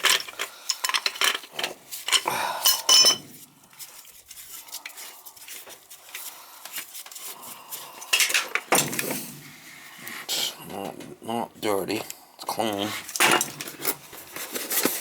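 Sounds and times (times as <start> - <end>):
metal tools clinking: 0.0 - 3.4.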